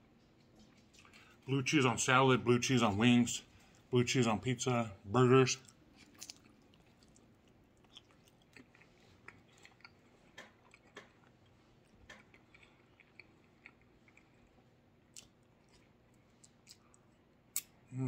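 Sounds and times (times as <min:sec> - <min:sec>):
person chewing with mouth clicks: 0:05.6 - 0:17.8.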